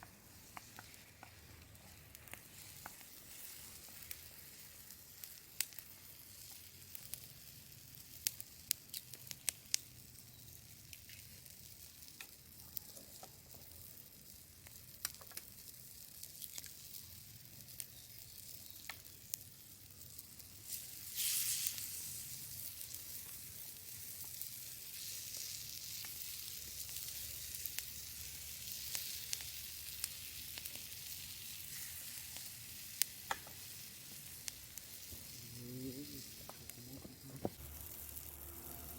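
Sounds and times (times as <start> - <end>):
food sizzling in a pan: 0.0 - 38.9.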